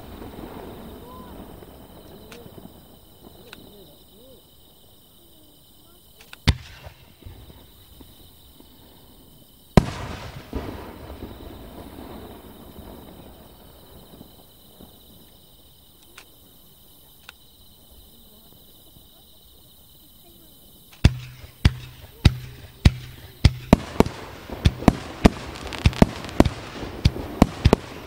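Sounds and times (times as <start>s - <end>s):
faint firework pops: 0.0s - 3.9s, 6.2s - 8.8s, 9.8s - 11.4s, 20.9s - 28.0s
firework shells bursting: 20.9s - 28.0s.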